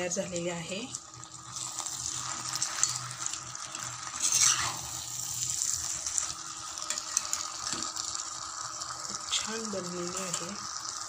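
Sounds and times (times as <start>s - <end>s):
meat sizzling in a pan: 0.0s - 11.0s
spatula stirring: 1.6s - 5.1s.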